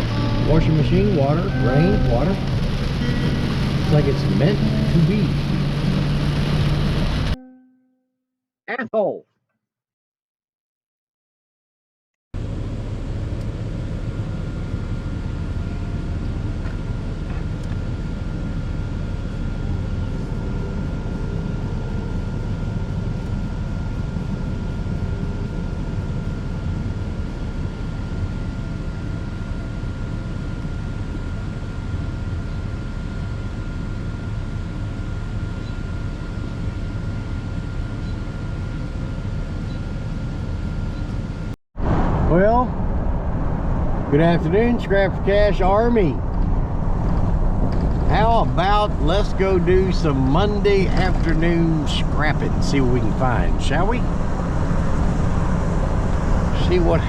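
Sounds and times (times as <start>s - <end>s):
vehicle driving rumble: 0.0s - 7.5s, 41.8s - 57.0s
faint high whine: 0.0s - 8.0s, 12.4s - 57.0s.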